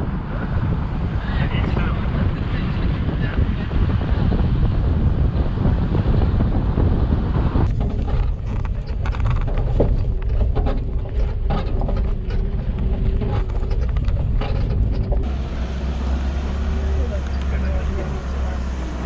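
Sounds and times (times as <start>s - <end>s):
engine hum: 0.0s - 19.0s
wind and road noise: 0.0s - 19.0s
rattling clicks: 7.6s - 18.7s.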